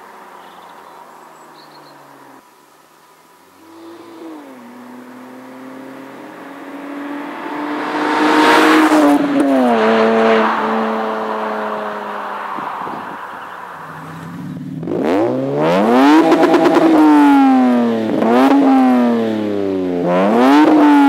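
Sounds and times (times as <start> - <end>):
car engine accelerating by: 3.6 - 21.0.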